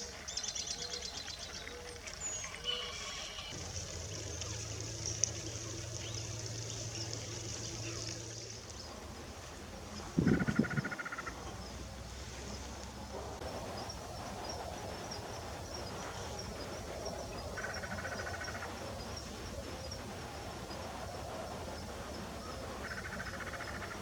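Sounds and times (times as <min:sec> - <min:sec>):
bird trilling: 0:10.2 - 0:11.4.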